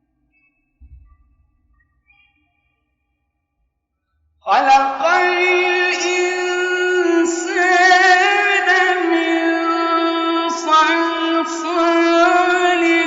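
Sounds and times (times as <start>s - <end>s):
man chanting melodic recitation: 4.5s - 13.0s.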